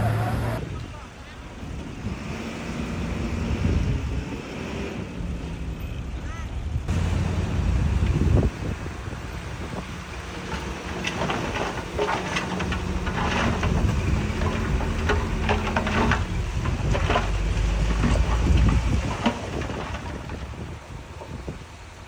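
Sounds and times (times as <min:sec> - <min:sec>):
diesel engine of heavy machinery: 0:00.0 - 0:22.0
loose stone rattling: 0:10.0 - 0:21.6.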